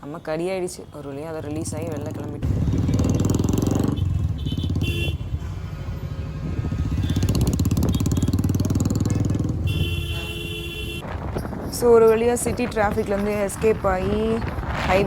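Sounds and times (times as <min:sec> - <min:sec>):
motorcycle engine running: 0:02.1 - 0:05.4, 0:06.2 - 0:10.0.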